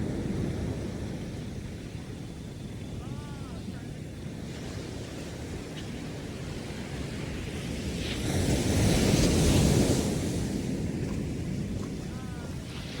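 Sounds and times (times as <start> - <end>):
ocean waves breaking on beach: 0.0 - 13.0.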